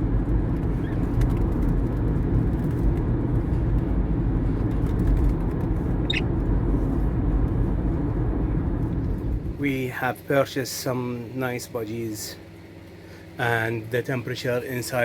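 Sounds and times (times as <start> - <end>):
car road and engine rumble: 0.0 - 11.4
budgerigar chirp: 6.0 - 6.2.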